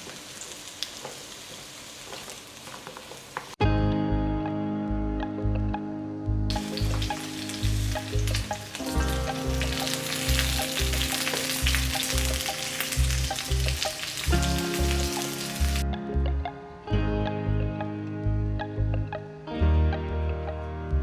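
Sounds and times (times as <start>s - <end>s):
food sizzling in hot oil: 0.0s - 3.6s, 6.5s - 15.8s.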